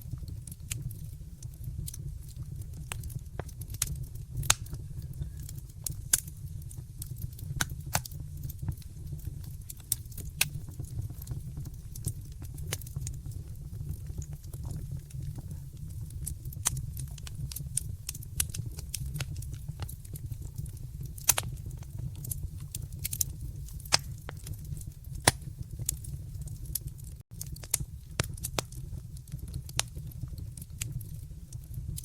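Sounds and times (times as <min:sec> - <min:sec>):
low rumble of flames: 0:00.0 - 0:32.0
wood fire crackling and popping: 0:00.0 - 0:32.0.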